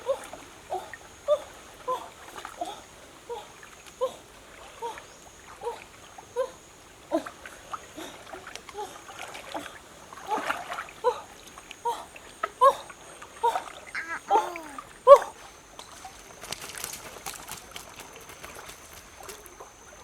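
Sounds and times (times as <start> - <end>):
small water splashes and plops: 7.2 - 20.0.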